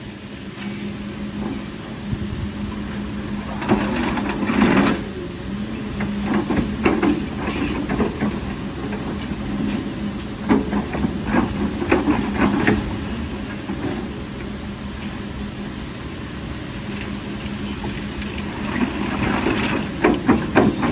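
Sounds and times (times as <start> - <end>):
excavator diesel engine running: 0.0 - 20.9.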